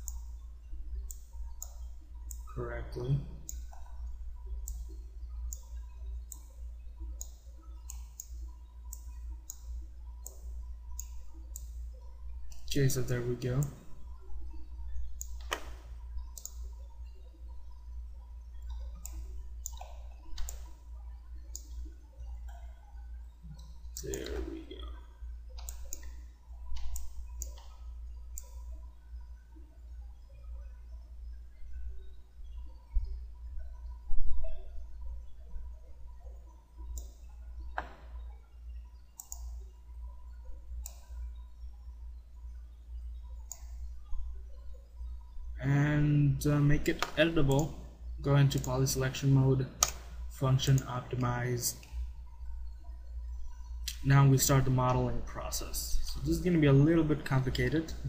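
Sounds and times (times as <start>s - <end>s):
computer mouse clicking: 0.0s - 2.6s, 3.4s - 28.9s, 31.6s - 38.4s, 39.2s - 41.6s, 43.2s - 44.8s, 46.8s - 47.8s, 49.8s - 55.0s
low steady hum: 0.0s - 58.0s.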